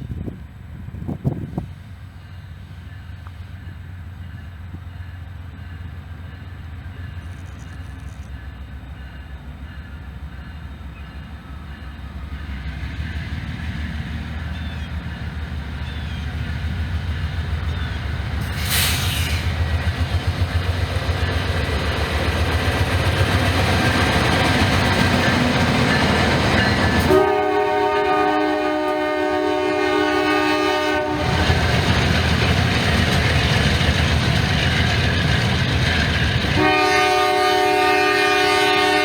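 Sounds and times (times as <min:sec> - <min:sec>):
diesel locomotive engine rumble: 0:00.0 - 0:39.0
short hiss: 0:18.4 - 0:19.6.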